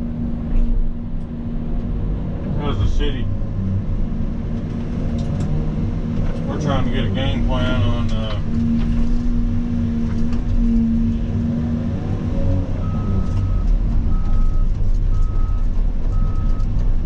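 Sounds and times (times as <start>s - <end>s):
diesel engine rumbling: 0.0s - 17.0s
backup alarm beeping: 12.8s - 16.6s.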